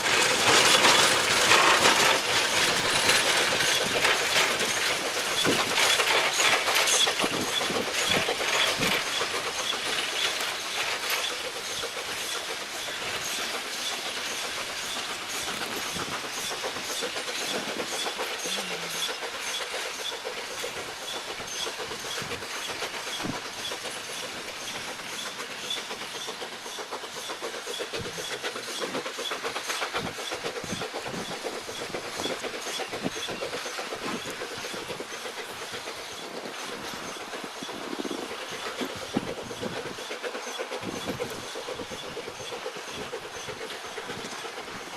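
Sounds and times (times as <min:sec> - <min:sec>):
steam train running: 0:00.0 - 0:44.9
wheels clicking over rail joints: 0:00.0 - 0:44.9.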